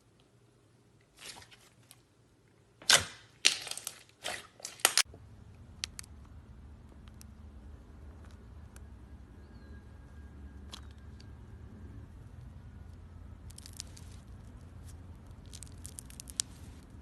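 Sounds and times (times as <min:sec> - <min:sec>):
steady low hum: 0:05.1 - 0:17.0.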